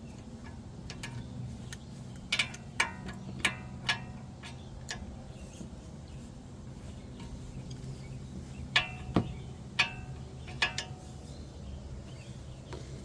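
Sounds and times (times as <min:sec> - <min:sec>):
metal tools clinking: 0:00.0 - 0:05.6, 0:08.6 - 0:11.3.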